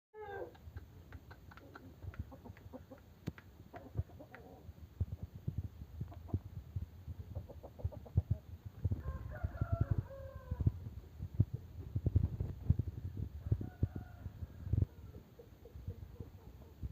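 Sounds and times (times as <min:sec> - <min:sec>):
chickens clucking: 0:00.2 - 0:05.4, 0:06.0 - 0:08.8, 0:14.8 - 0:16.9
rooster crowing: 0:09.0 - 0:10.8, 0:13.4 - 0:15.1.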